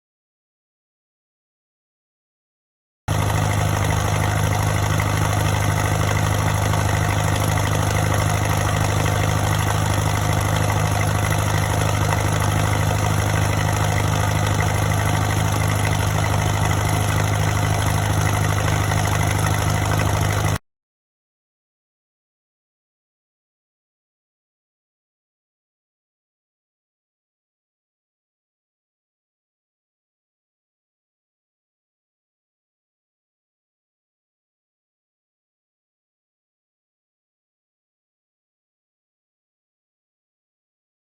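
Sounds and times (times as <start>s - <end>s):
tractor engine idling: 3.1s - 20.6s.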